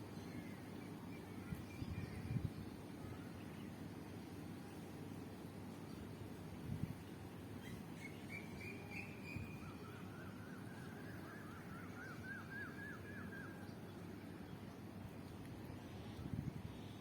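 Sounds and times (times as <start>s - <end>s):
songbird singing: 0.0s - 4.4s, 7.0s - 17.0s.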